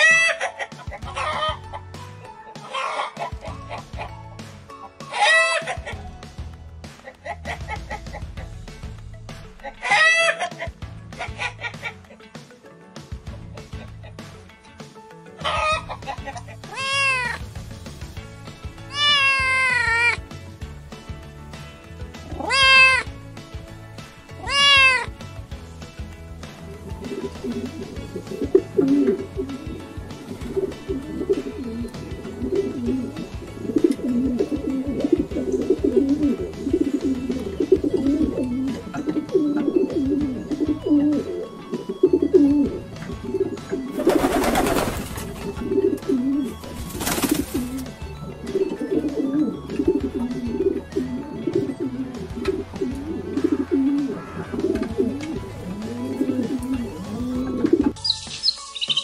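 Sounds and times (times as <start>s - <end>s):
wood pigeon cooing: 26.7s - 59.0s.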